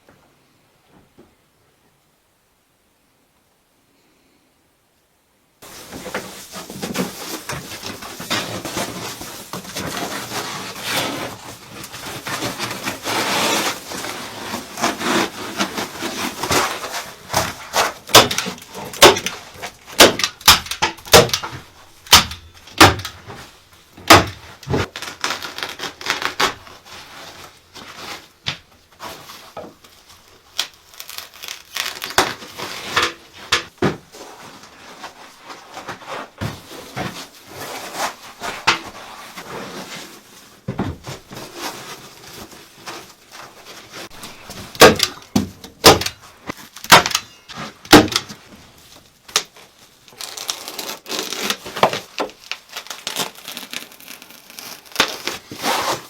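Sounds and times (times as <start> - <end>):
rustling and scraping on wood: 5.6 - 56.0
sharp wooden knocks: 20.0 - 23.1, 44.8 - 46.2, 46.8 - 47.3, 47.9 - 48.3.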